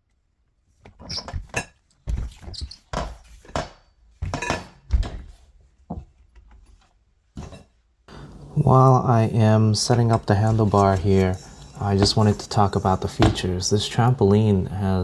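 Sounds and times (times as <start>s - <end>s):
metal tubes clunking and knocking: 7.4s - 14.8s.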